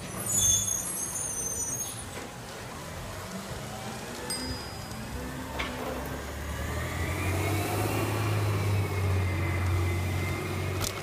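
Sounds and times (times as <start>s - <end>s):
engine whine: 2.2s - 11.0s
garbage truck engine accelerating: 2.8s - 11.0s.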